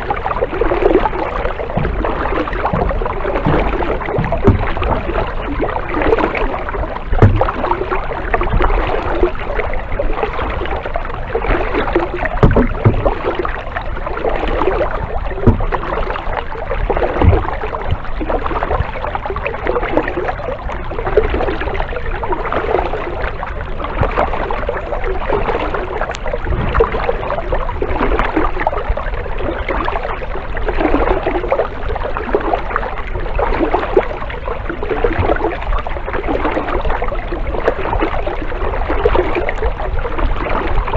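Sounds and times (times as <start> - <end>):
dull low knocks: 0.0 - 10.0, 10.8 - 19.2, 25.7 - 29.0
kayak paddle splashing: 0.0 - 40.9.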